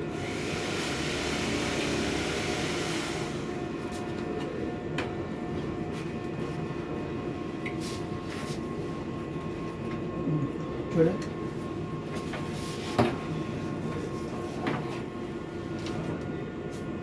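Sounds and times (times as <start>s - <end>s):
air conditioner humming: 3.2s - 15.8s.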